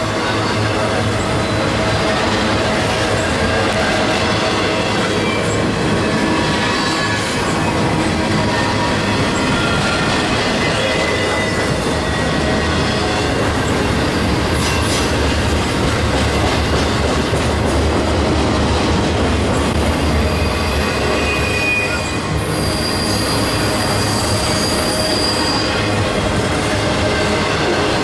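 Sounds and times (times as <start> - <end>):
freight train rumbling on rails: 0.0 - 28.0
wheel flange squeals: 4.8 - 12.7, 20.1 - 26.0.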